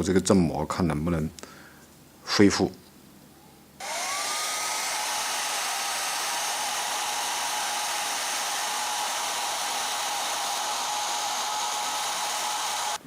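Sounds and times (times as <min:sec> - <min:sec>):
hair dryer running: 0:03.8 - 0:13.0.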